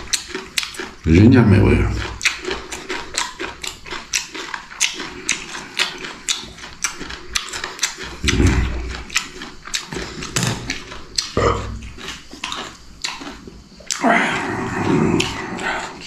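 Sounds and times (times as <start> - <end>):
man chewing crunchy cucumber: 0.0 - 16.0
short low vocal sound: 8.2 - 9.0.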